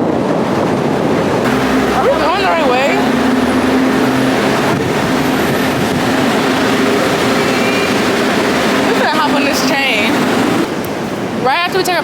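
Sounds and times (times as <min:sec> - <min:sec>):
train rumbling: 0:00.0 - 0:11.3
faint high whine: 0:01.4 - 0:10.7
low hum: 0:01.4 - 0:10.7.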